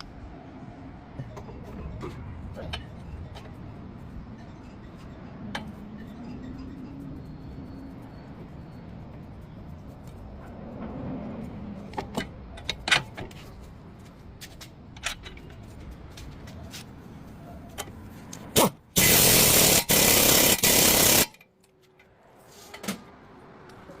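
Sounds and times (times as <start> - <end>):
loud harsh burst of noise: 19.0 - 21.3.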